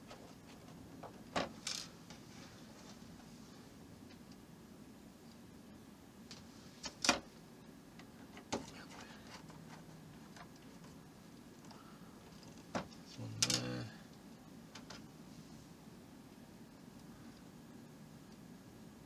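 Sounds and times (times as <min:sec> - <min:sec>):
man humming: 0:13.1 - 0:14.1.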